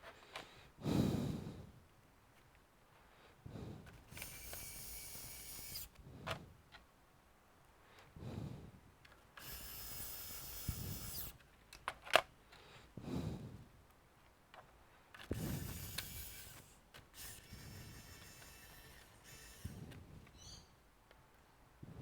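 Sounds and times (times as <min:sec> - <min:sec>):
electric screwdriver whirring: 0:04.1 - 0:06.0, 0:09.4 - 0:11.4, 0:15.2 - 0:20.5.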